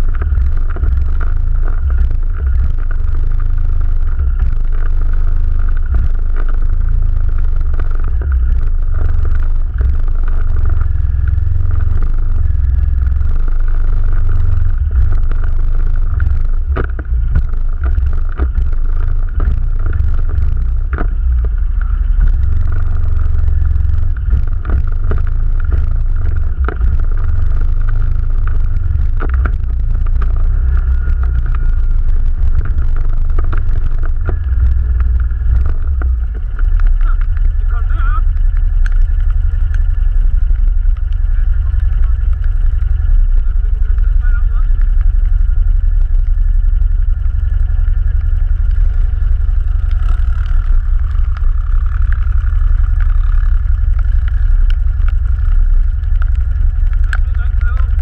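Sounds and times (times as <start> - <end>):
atv engine rumble and whine: 0.0 - 58.0.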